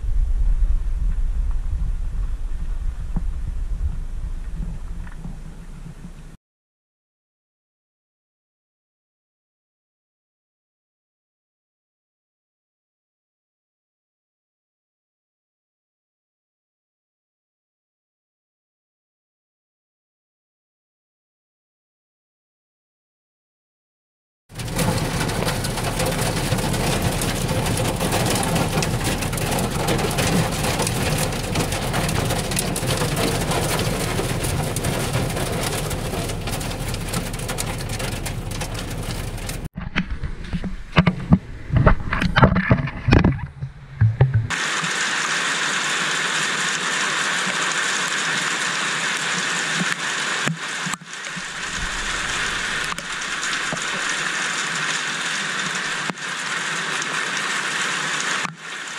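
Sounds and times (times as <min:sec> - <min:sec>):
wind gusts: 0:00.0 - 0:06.4, 0:24.7 - 0:44.5, 0:51.3 - 0:54.1
heavy rain hissing: 0:24.6 - 0:39.7, 0:44.5 - 0:58.9.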